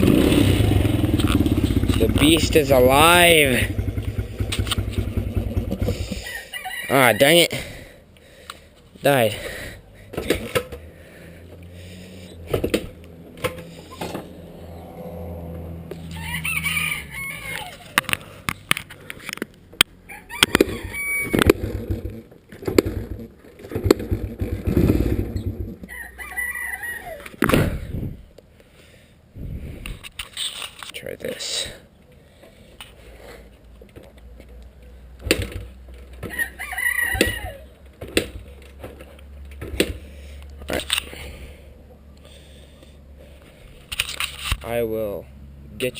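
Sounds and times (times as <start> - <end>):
rooster crowing: 6.2 - 7.4, 15.8 - 18.0, 20.0 - 21.5, 25.9 - 27.3, 36.2 - 37.7.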